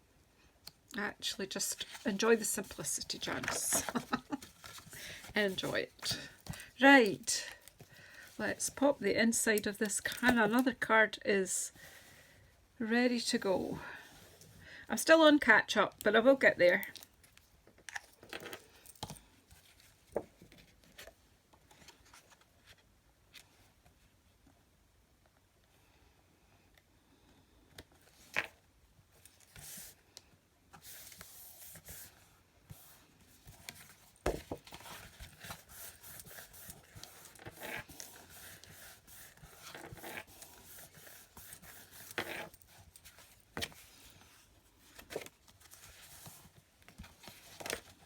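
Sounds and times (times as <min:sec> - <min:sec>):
paper rustling and sliding: 0:01.8 - 0:06.8, 0:30.7 - 0:48.0.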